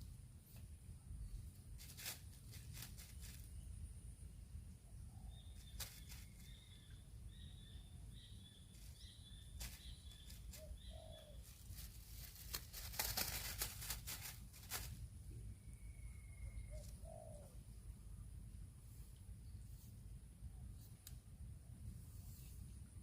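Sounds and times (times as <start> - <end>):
small bird chirping: 4.9 - 17.7
dove-like cooing: 10.5 - 11.7, 16.4 - 17.6.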